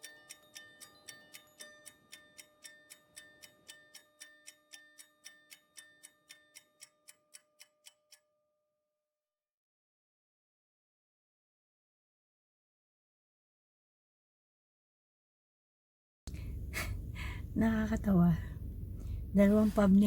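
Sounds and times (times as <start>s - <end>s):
clock-like ticking: 0.0s - 8.2s.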